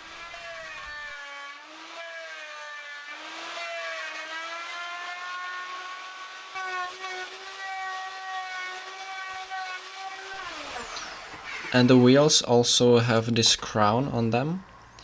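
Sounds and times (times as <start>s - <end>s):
electric motor whine: 4.2s - 12.4s.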